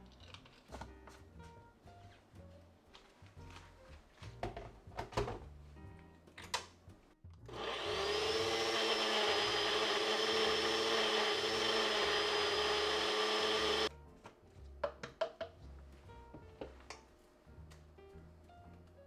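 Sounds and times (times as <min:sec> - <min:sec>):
blender motor running: 0:07.5 - 0:13.9.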